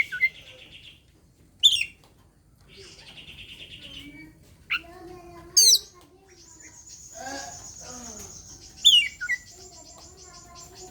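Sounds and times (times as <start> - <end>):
bird buzzy rattling chatter: 5.8 - 10.9.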